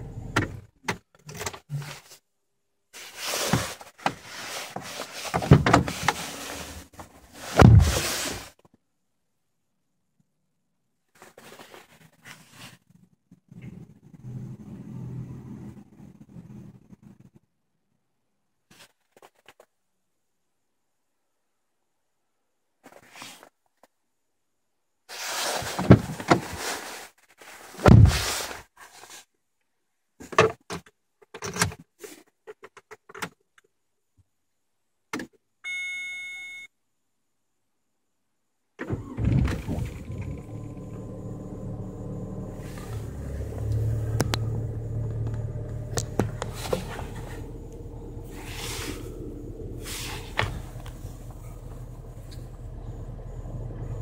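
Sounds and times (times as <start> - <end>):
car engine starting and idling: 0.0 - 0.8, 38.8 - 54.0
dashboard warning beep: 35.6 - 36.7.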